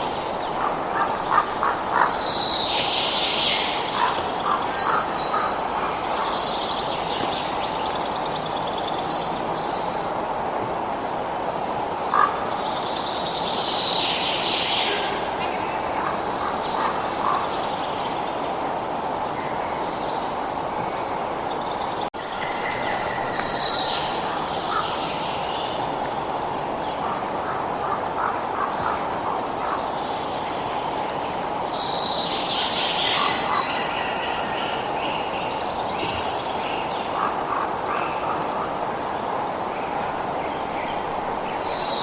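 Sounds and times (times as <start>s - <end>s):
birds chirping and trilling: 0.0s - 9.6s, 12.1s - 20.3s, 21.2s - 38.4s.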